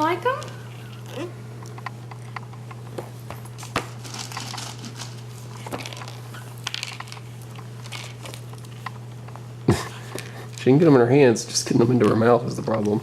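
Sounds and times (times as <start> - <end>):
steady low hum: 0.0 - 13.0
snack bag crinkling and taps: 1.6 - 9.4, 12.0 - 13.0.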